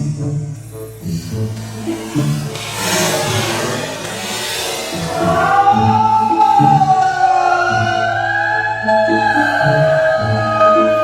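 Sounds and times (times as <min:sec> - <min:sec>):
gliding melody line: 0:00.6 - 0:08.2.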